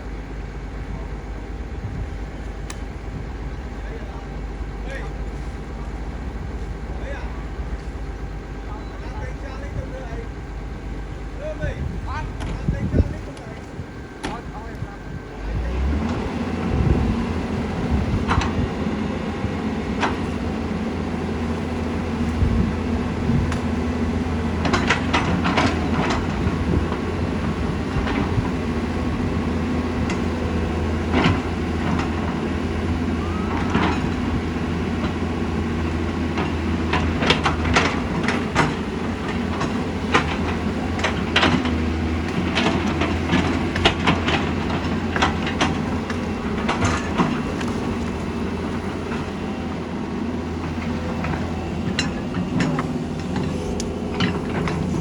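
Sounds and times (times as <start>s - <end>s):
excavator diesel engine running: 0.0s - 55.0s
metal clanks and knocks: 36.4s - 49.3s, 50.6s - 55.0s.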